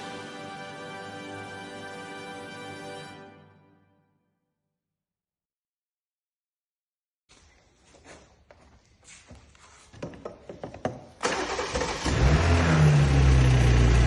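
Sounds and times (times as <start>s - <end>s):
car engine starting and idling: 11.2s - 14.0s.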